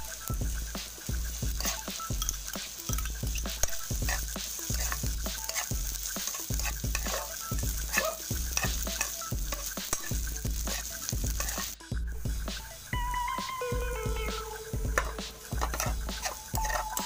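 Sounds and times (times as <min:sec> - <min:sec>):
spatula scraping a frying pan: 0:00.0 - 0:11.8, 0:14.9 - 0:17.0
meat sizzling in hot oil: 0:00.0 - 0:17.0
spatula clicking against pan: 0:01.6 - 0:11.8, 0:15.0 - 0:17.0.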